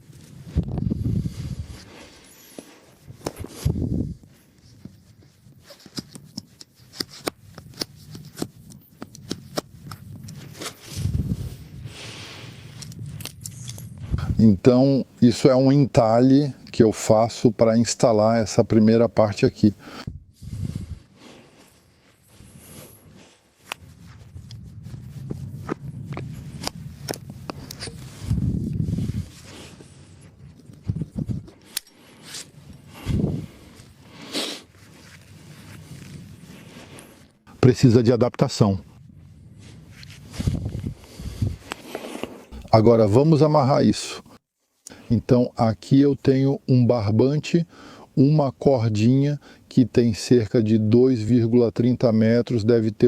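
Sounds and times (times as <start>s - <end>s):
rustling: 0.0s - 17.1s, 18.0s - 37.5s, 38.6s - 42.9s
knife carving wood: 4.8s - 10.8s.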